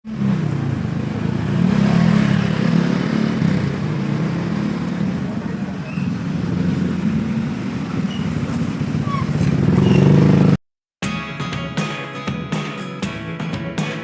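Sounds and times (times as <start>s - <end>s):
street noise: 0.0s - 10.6s.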